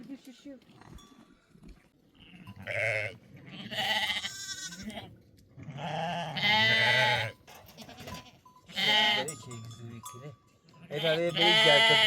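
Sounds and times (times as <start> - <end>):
livestock bleating: 2.1 - 9.4, 10.8 - 12.0.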